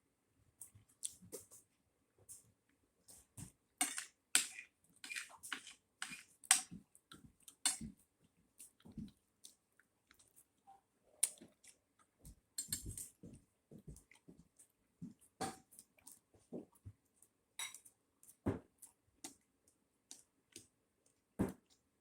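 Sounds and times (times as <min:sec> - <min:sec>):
wet chewing and mouth smacks: 0:08.6 - 0:13.2, 0:14.0 - 0:17.3.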